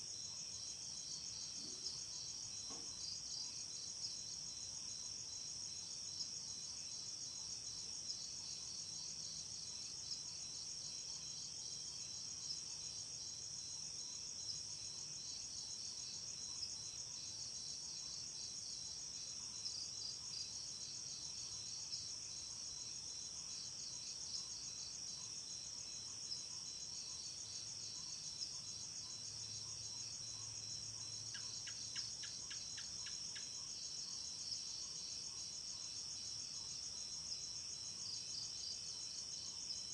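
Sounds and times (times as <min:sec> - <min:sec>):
insect chirps: 0:00.0 - 0:39.9
crickets trilling: 0:12.9 - 0:39.9.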